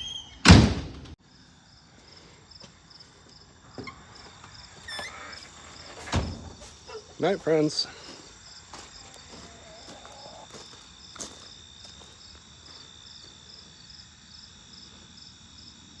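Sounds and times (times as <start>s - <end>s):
crickets chirping: 1.2s - 16.0s.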